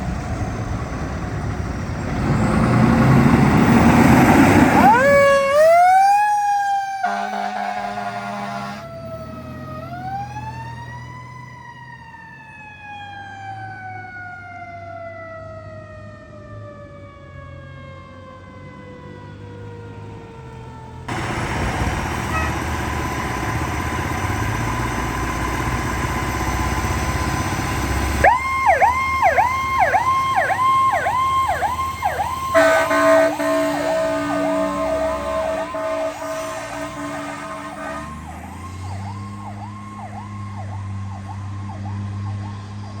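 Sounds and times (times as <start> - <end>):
heavy truck engine: 0.0 - 11.2, 20.2 - 43.0
electronic siren yelping: 4.5 - 10.4, 21.1 - 40.8
loud horn blast: 7.0 - 9.0, 21.1 - 23.1, 32.0 - 38.6.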